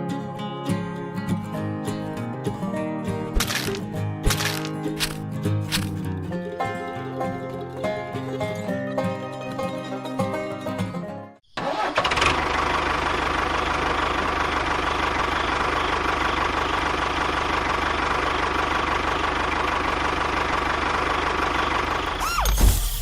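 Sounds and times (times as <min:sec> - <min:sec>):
banjo-style music: 0:00.0 - 0:11.4.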